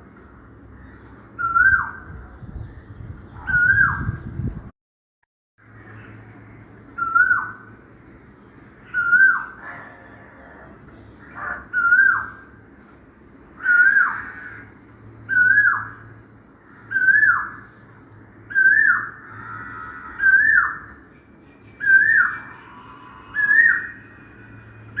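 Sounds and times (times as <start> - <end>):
small birds chirping: 0.0 - 4.7, 5.6 - 25.0
bird whistled call: 1.4 - 2.1, 7.0 - 7.6, 8.9 - 9.6, 15.3 - 16.2, 16.9 - 17.6, 18.5 - 19.2, 21.8 - 24.4.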